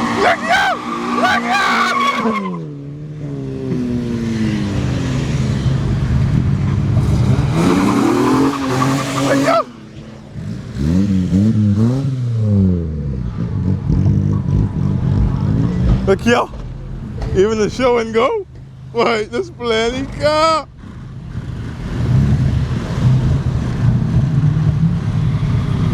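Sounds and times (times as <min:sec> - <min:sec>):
tyre squeal: 0:00.0 - 0:02.6, 0:07.6 - 0:09.8
car engine revving: 0:00.0 - 0:25.9.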